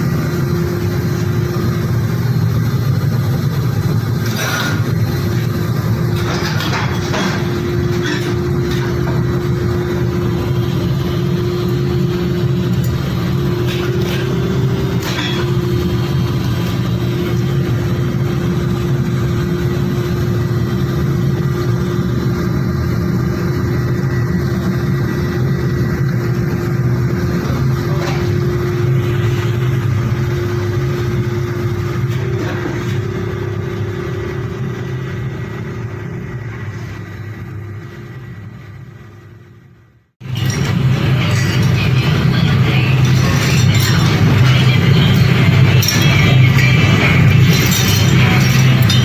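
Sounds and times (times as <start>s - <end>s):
factory machinery humming: 0.0s - 49.0s
constant mid-pitched tone: 40.2s - 49.0s.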